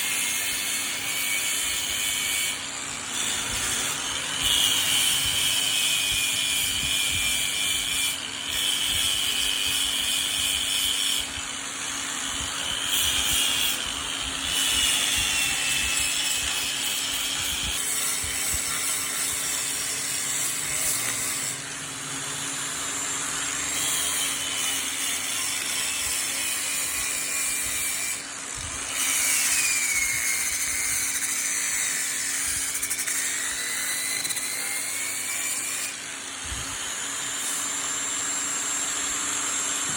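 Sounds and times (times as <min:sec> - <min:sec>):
high tool whine: 0:00.0 - 0:39.9
power tool motor hum: 0:00.0 - 0:39.9.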